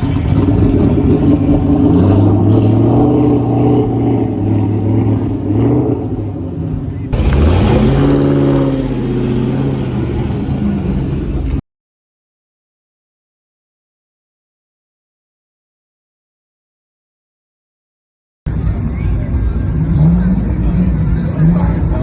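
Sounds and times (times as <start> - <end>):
car engines revving: 0.0 - 11.6, 18.5 - 22.0.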